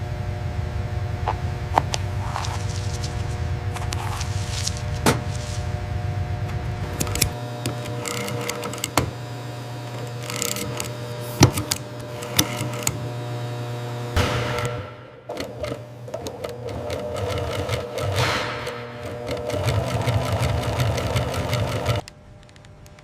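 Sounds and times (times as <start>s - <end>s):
factory machinery humming: 0.0s - 23.0s
low rumble: 0.1s - 7.4s.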